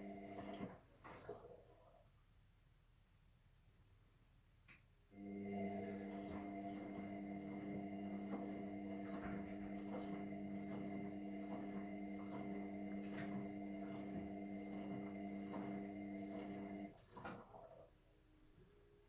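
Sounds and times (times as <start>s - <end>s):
washing machine humming: 0.0s - 1.8s, 5.1s - 17.9s.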